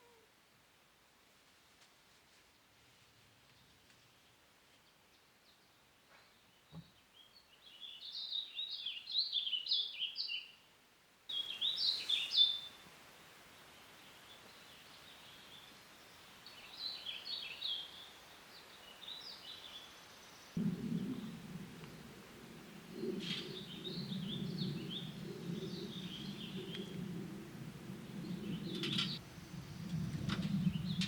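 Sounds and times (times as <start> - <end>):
faint background hiss: 0.0 - 31.0
songbird chirping: 3.4 - 31.0.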